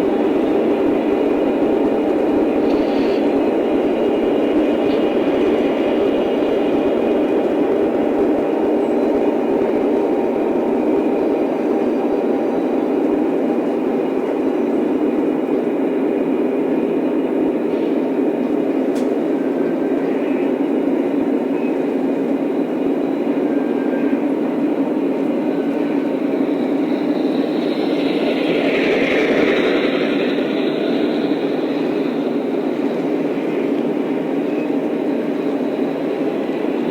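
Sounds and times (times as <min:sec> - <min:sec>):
model train rolling rumble: 0:00.0 - 0:14.2, 0:24.9 - 0:34.4.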